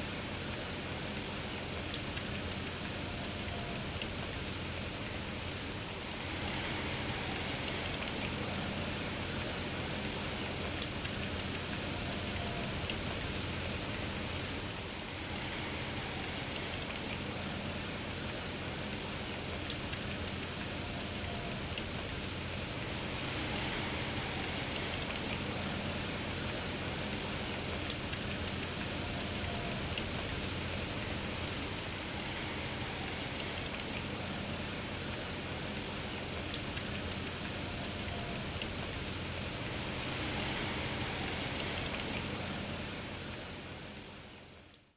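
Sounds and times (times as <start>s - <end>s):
steady rain hiss: 0.0s - 44.9s.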